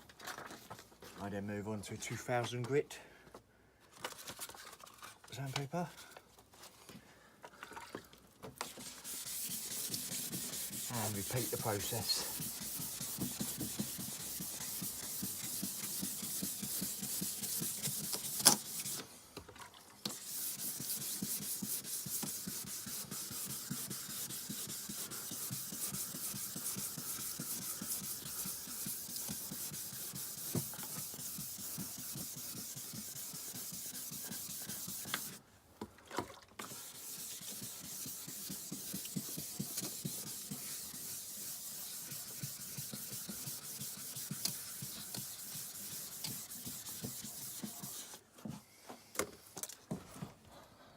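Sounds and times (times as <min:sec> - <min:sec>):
sandpaper rasping on plastic: 0:08.6 - 0:19.0, 0:20.1 - 0:35.4, 0:36.7 - 0:48.2.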